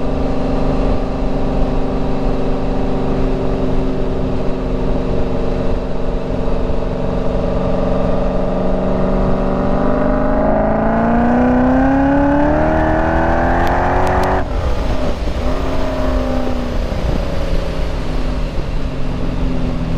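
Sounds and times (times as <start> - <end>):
engine revving: 0.0 - 18.6.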